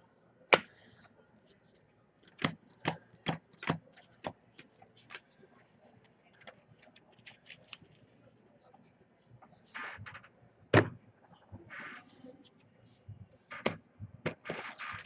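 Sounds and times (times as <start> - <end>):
cards rustling: 6.0 - 8.2.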